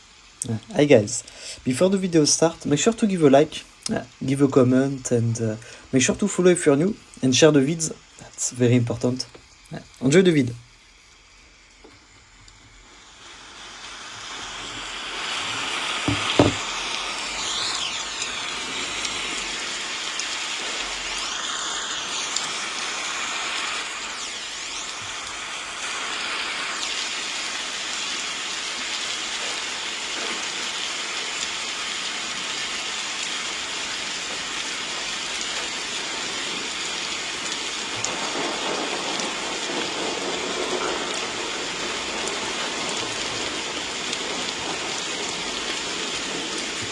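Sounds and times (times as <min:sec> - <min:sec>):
steady rain: 0:00.0 - 0:46.9
sharp tap: 0:16.0 - 0:16.7.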